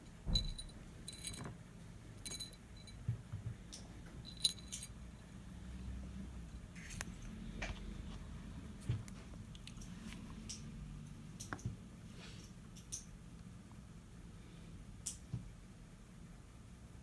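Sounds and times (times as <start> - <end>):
small metal parts clinking: 0.3 - 1.6, 2.2 - 3.0, 4.2 - 5.2.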